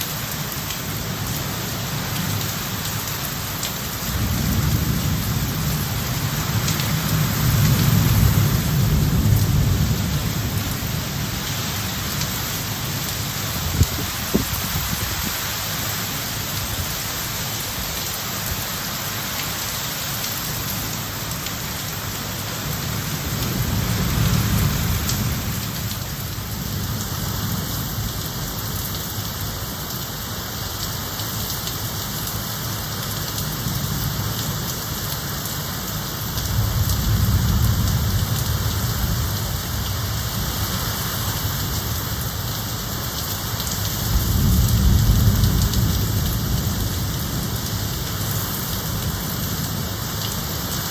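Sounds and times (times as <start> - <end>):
heavy rain falling: 0.0 - 50.9
low rolls of thunder: 44.1 - 47.8.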